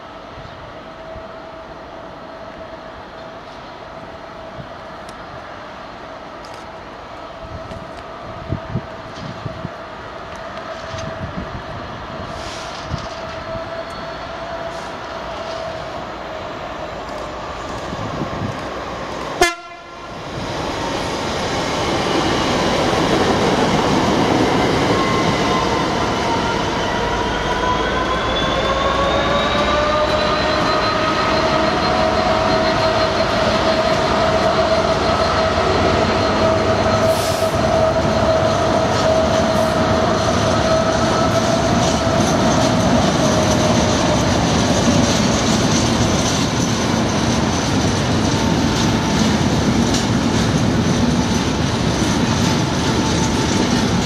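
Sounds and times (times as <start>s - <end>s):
diesel locomotive passing: 0.0s - 54.0s
freight wagons rumbling and clattering: 38.2s - 54.0s.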